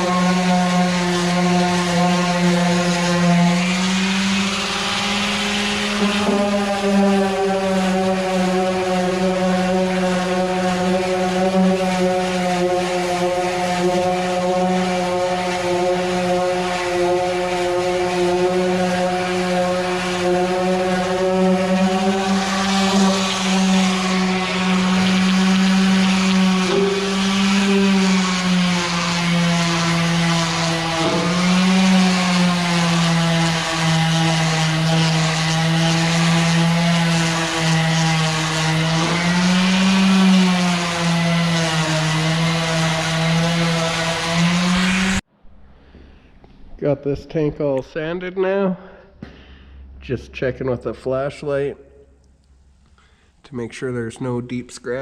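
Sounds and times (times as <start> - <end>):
electric sander on metal tank: 0.0 - 45.3.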